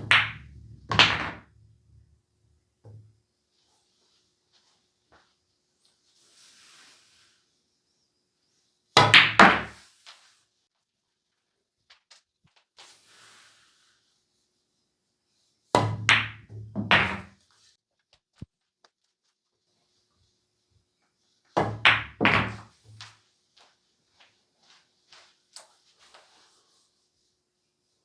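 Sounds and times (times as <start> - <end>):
balls thudding into cushions: 0.0 - 1.5
balls rolling clicks: 0.0 - 2.0
billiard balls clacking: 0.0 - 2.0, 9.0 - 9.8, 15.8 - 17.3, 21.6 - 22.7
cue striking ball: 0.0 - 2.0, 15.8 - 17.3, 21.6 - 22.6.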